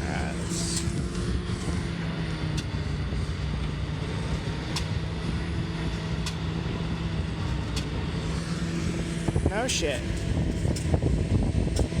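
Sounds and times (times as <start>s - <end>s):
diesel truck engines droning: 0.0s - 12.0s.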